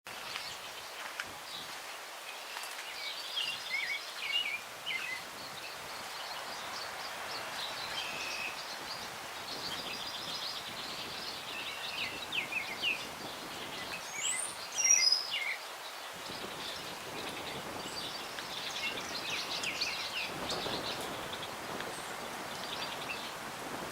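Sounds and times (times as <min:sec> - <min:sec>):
breeze through trees: 0:00.1 - 0:23.9
songbirds chirping and trilling: 0:00.2 - 0:23.5
loud high bird call: 0:07.8 - 0:08.7.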